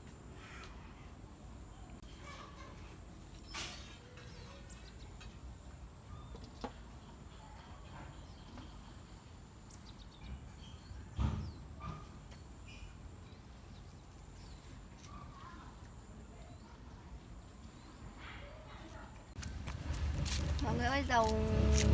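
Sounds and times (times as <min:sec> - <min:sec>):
small birds chirping: 0:02.0 - 0:05.4, 0:06.1 - 0:19.7
steady low rumble: 0:19.4 - 0:21.9.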